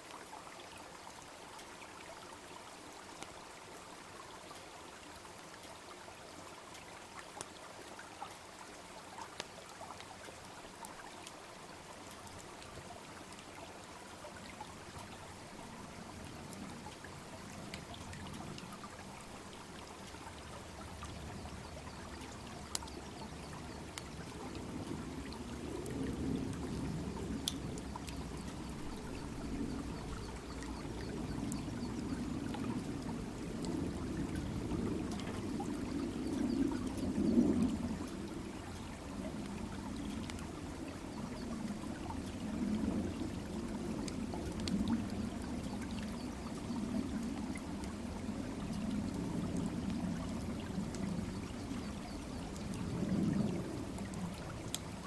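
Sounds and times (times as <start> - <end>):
brook babbling: 0.0 - 55.0
bonfire crackling: 22.7 - 29.6.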